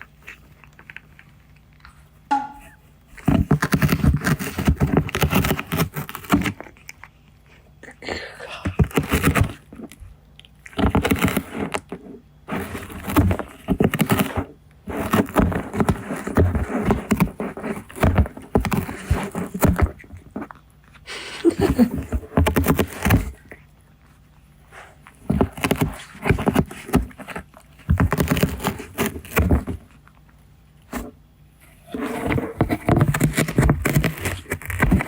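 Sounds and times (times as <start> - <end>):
cat ripping cardboard: 3.2 - 6.8, 8.7 - 9.8, 10.7 - 20.4, 21.8 - 23.6, 24.7 - 30.0, 31.7 - 35.0.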